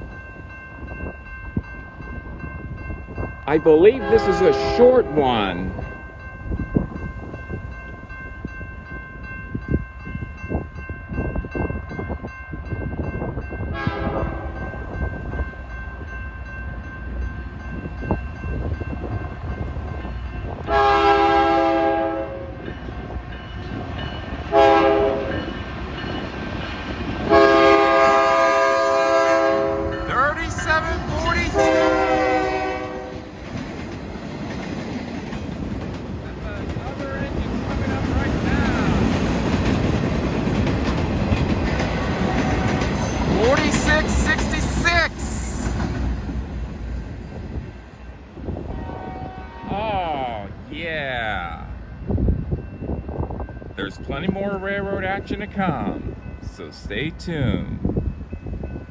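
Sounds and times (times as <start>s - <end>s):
train engines and wheels rumbling: 0.0s - 58.9s
locomotive air horn blasts: 3.9s - 5.5s, 13.7s - 14.6s, 20.7s - 22.6s, 24.5s - 25.4s, 27.3s - 30.2s, 31.4s - 33.3s, 48.7s - 49.8s.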